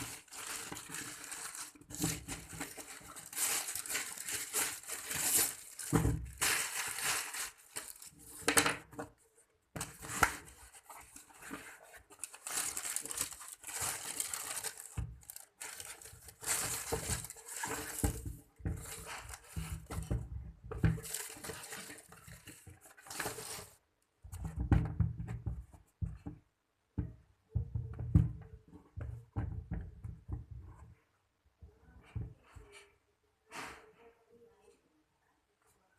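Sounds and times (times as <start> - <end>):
packaging rustling and crinkling: 0.0 - 9.0, 9.8 - 23.8.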